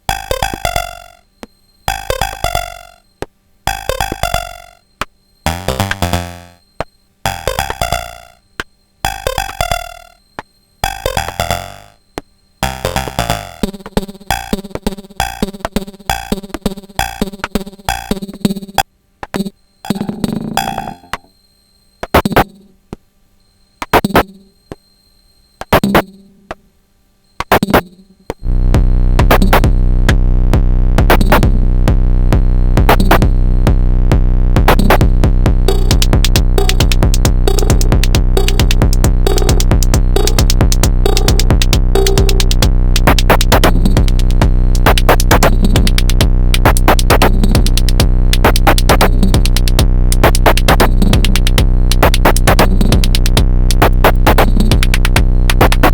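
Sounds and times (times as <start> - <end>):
drum machine techno beat: 0.1 - 1.2, 1.9 - 4.8, 5.5 - 6.3, 7.3 - 8.4, 9.1 - 10.1, 10.8 - 12.0, 12.6 - 14.0, 28.7 - 55.9
sustained low drone: 28.4 - 34.6.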